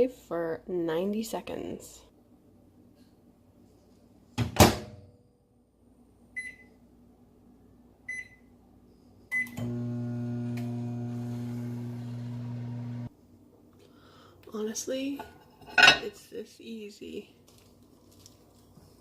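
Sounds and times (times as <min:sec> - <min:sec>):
microwave oven humming: 0:09.3 - 0:13.1.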